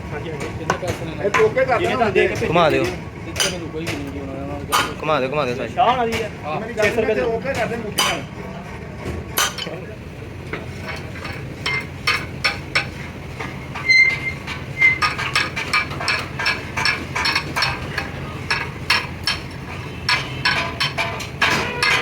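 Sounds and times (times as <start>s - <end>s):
metal taps and clinks: 9.4s - 9.8s, 10.5s - 22.0s.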